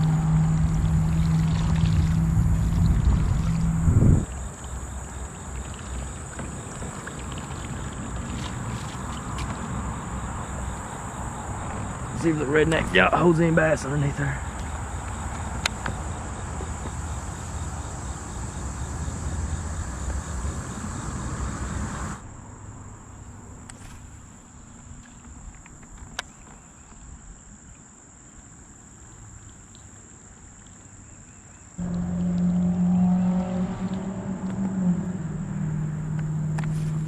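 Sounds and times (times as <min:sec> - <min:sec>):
loud low hum: 0:00.0 - 0:04.4, 0:31.8 - 0:37.0
insects chirring: 0:00.0 - 0:37.0.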